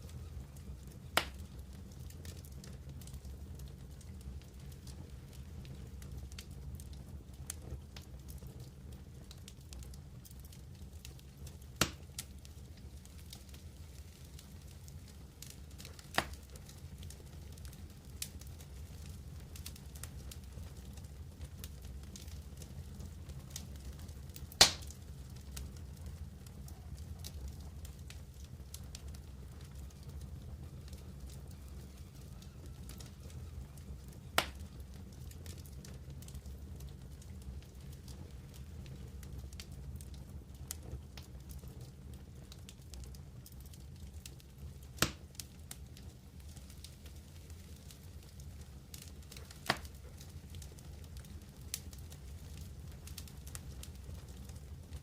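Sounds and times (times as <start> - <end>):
campfire crackling: 0.0 - 55.0
fire popping: 0.0 - 55.0
loud fire pop: 11.8 - 12.0, 24.6 - 25.0, 45.0 - 45.2.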